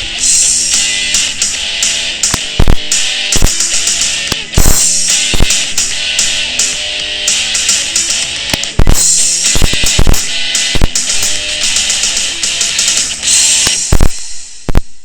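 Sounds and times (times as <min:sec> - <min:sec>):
rock music with guitar and drums: 0:00.0 - 0:14.9
sharp loud cracks: 0:00.6 - 0:14.8.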